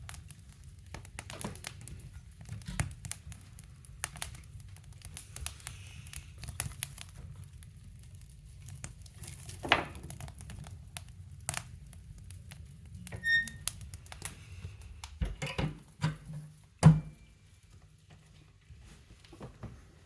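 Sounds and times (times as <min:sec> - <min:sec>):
firewood clicks and knocks: 0:08.8 - 0:10.7.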